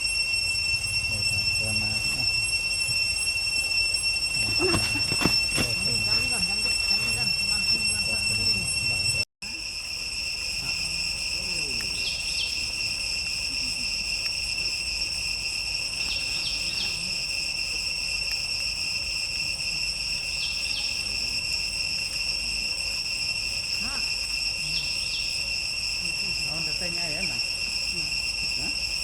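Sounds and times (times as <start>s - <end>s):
insect double chirp: 0.0s - 29.0s
insects droning: 0.0s - 29.0s.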